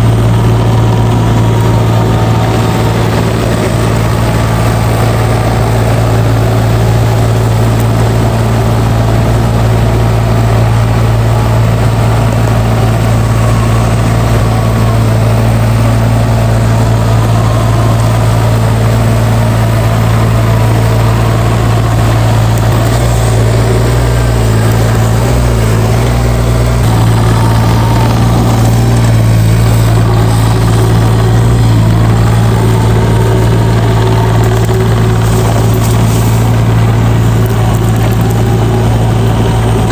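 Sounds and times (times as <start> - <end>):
heavy machinery engine humming: 0.0 - 39.9.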